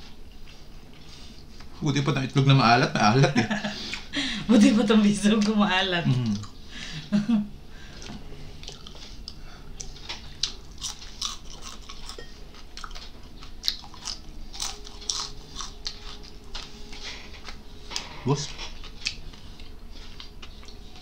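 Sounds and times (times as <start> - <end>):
chewing fried fish: 8.0 - 21.0.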